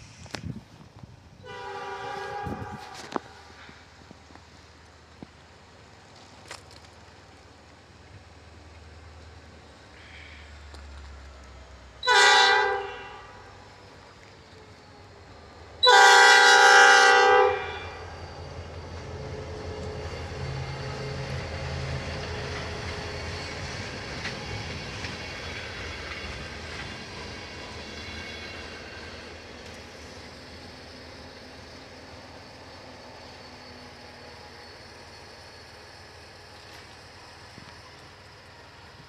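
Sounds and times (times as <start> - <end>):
train rumbling past: 0.0 - 39.0
locomotive air horn blasts: 1.4 - 3.5, 12.0 - 13.5, 15.8 - 18.0.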